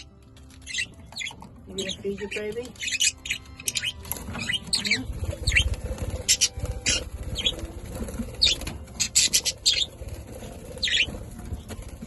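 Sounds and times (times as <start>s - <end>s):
budgerigars chirping: 0.0s - 12.0s
low fluttering rumble: 4.1s - 12.0s.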